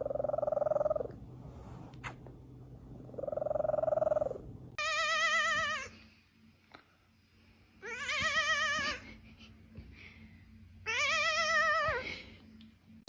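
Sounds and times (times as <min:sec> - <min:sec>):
cat purring: 0:00.0 - 0:04.8
cat meowing: 0:04.8 - 0:05.9, 0:10.9 - 0:12.0.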